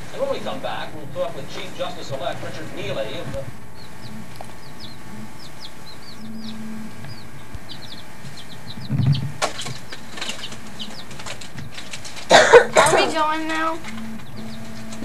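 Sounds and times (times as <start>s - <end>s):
small bird chirping: 0.4s - 15.0s
sharp clicks: 3.2s - 12.3s.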